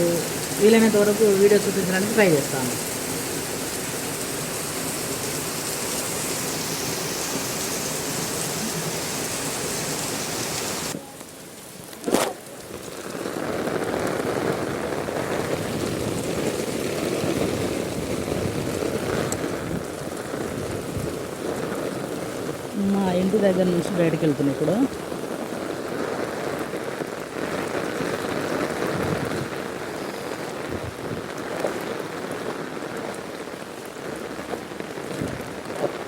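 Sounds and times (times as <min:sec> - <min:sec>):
heavy rain pouring: 0:00.0 - 0:36.0.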